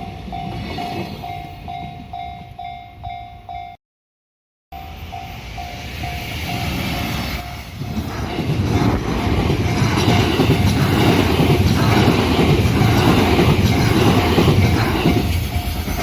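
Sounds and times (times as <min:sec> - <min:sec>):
train rumble and wheel noise: 0:00.0 - 0:03.6, 0:04.8 - 0:16.0
level crossing warning bell: 0:00.0 - 0:03.8, 0:04.7 - 0:08.0.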